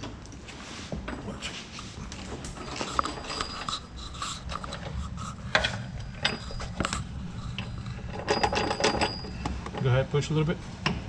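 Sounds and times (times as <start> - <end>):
scraping and rubbing: 0.5 - 8.8.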